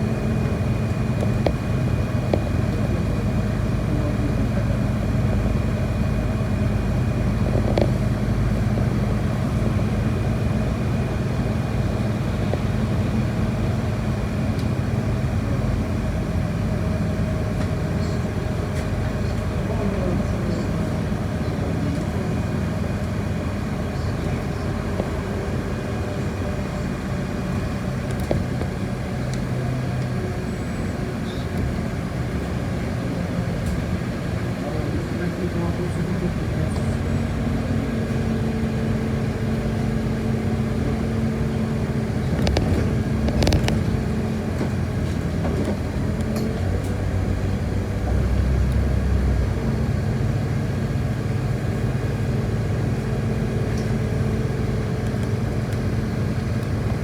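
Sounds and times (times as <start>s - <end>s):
bus engine rumble: 0.0s - 57.0s
faint rattles and clicks: 42.2s - 46.5s.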